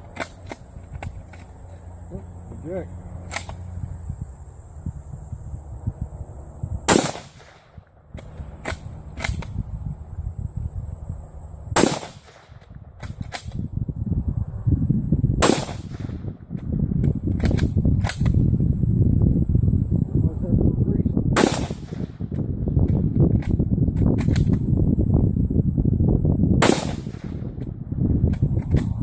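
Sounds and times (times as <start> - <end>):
rifle shots: 6.9 - 7.8, 11.8 - 13.5, 15.4 - 16.2, 21.4 - 22.1, 26.6 - 27.4.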